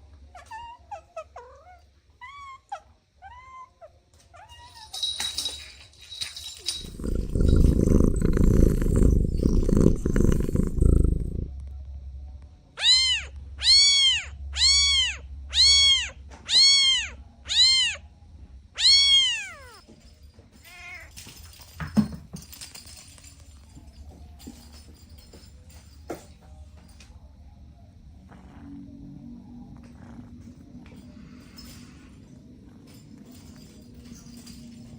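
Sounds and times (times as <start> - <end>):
cat purring: 6.6 - 11.6, 28.1 - 33.4
cat meowing: 12.8 - 18.0.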